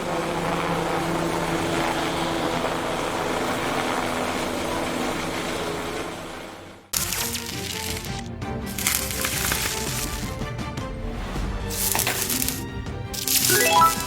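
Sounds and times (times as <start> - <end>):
helicopter engine and rotor: 0.0 - 6.9.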